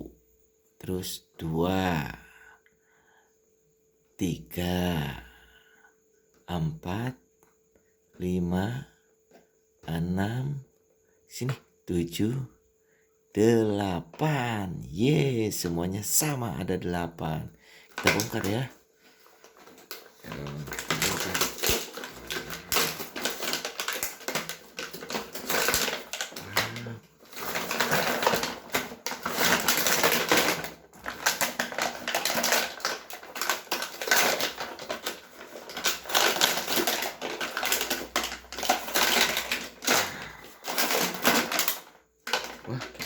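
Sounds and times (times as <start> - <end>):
plastic packaging crinkling: 17.9 - 43.0.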